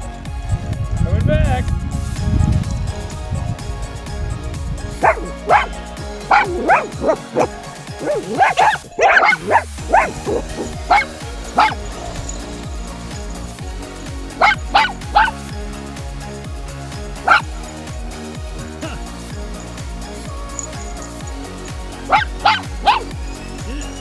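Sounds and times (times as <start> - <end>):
background music: 0.0 - 24.0
dog yapping: 5.0 - 5.7, 6.3 - 12.5, 14.4 - 15.4, 17.2 - 17.5, 22.0 - 24.0.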